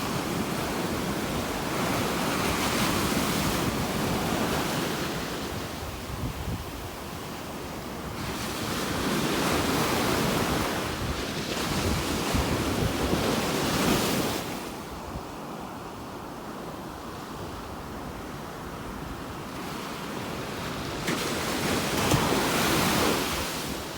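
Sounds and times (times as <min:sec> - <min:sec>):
wind buffeting microphone: 0:00.0 - 0:15.3.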